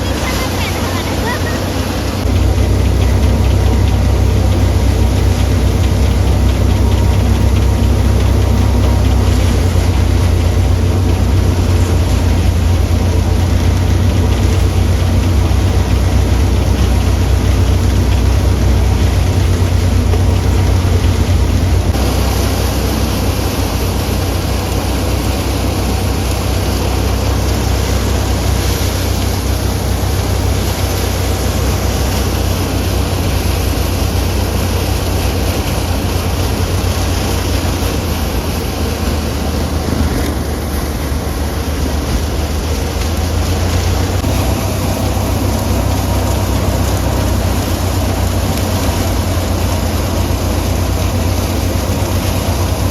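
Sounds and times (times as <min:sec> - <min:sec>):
tractor engine drone: 0:00.0 - 0:52.9.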